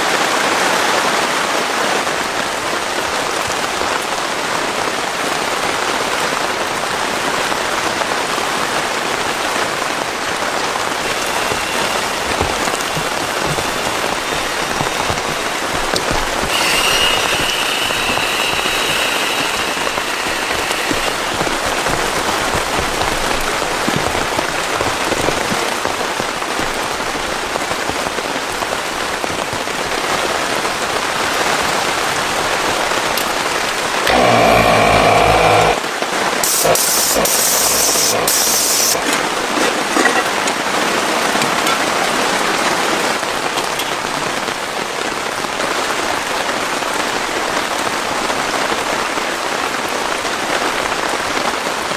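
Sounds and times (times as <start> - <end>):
heavy rain falling: 0.0 - 51.9
higher hissing: 10.9 - 24.2, 34.1 - 39.5.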